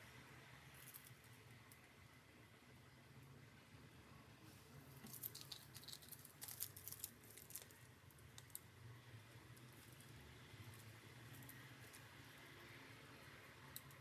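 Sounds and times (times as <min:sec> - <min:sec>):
faint clicks and scratches: 0:04.9 - 0:08.7.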